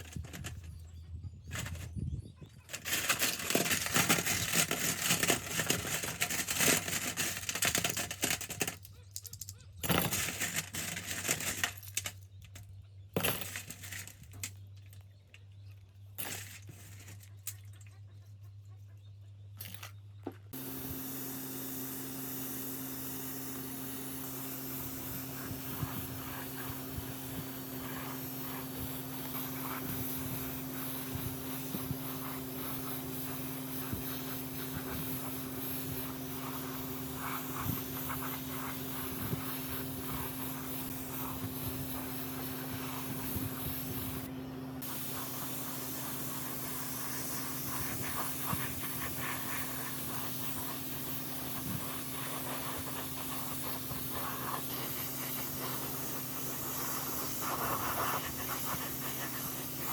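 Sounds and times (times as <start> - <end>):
motor hum: 20.5 - 59.9
hissing spray: 20.6 - 59.9.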